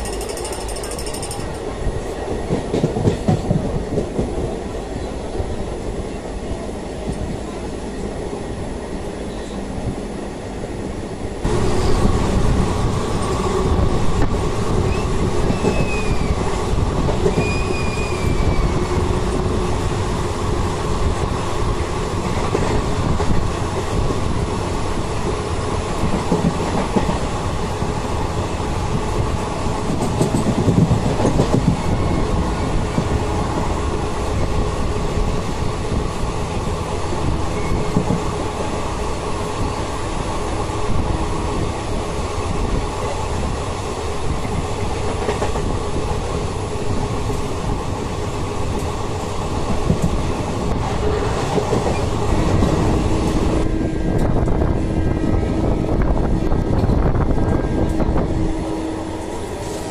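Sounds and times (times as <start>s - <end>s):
clickety-clack over rail joints: 0.0s - 4.6s, 11.5s - 19.6s, 22.2s - 24.4s, 25.0s - 28.0s, 28.8s - 36.0s, 37.5s - 38.7s, 44.3s - 54.8s, 55.9s - 58.2s
train wheels rumbling on track: 0.0s - 59.9s.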